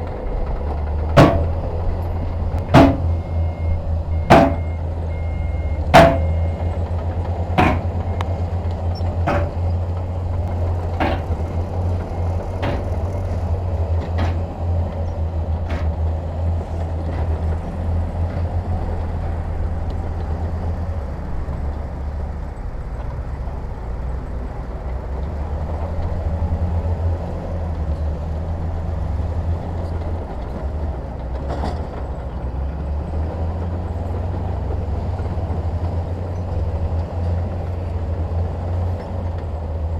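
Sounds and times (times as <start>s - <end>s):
heavy diesel engine droning: 0.0s - 39.9s
sharp metallic knock: 1.2s - 1.6s, 2.6s - 3.3s, 4.2s - 4.8s, 5.9s - 6.6s, 7.6s - 8.2s, 9.2s - 9.7s, 11.0s - 11.4s, 12.6s - 13.0s, 15.7s - 15.9s.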